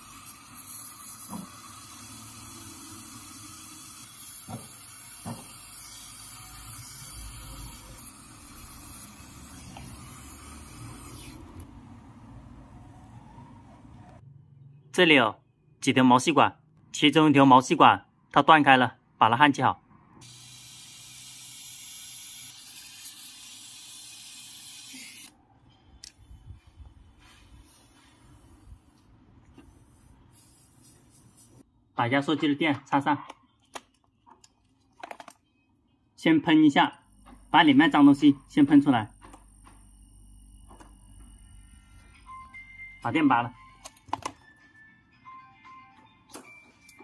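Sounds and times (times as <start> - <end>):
torch flame hissing: 0.0 - 11.5.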